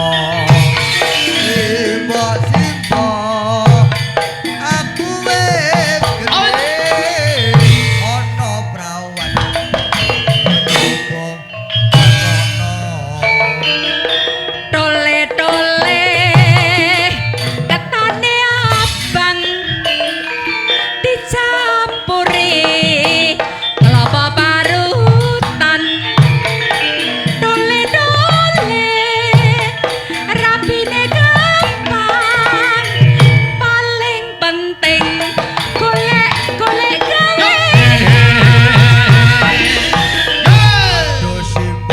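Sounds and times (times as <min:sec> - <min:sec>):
hand drum strokes: 0:00.0 - 0:20.3, 0:34.8 - 0:41.9
gamelan melody: 0:00.0 - 0:41.9.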